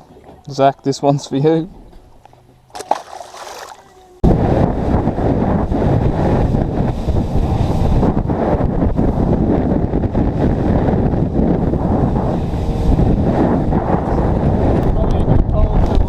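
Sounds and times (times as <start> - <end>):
wind buffeting microphone: 3.3 - 16.0.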